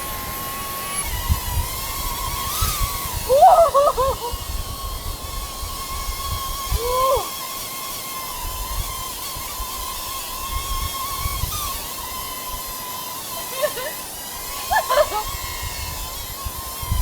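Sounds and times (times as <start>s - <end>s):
wind rumbling on microphone: 0.0s - 7.2s, 8.4s - 11.9s, 15.0s - 17.0s
drone propellers whining: 0.0s - 17.0s.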